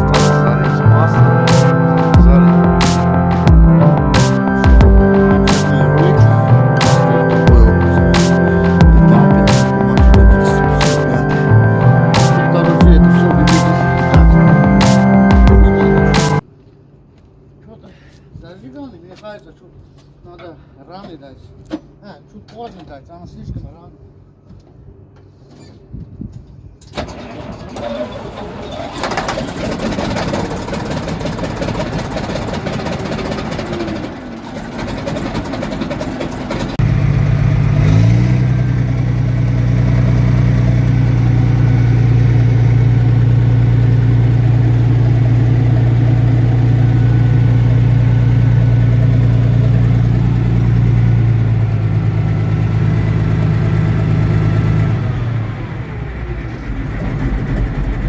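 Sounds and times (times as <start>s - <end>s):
diesel engine running: 0.0s - 16.4s, 27.2s - 58.0s
starter motor whir: 26.9s - 58.0s.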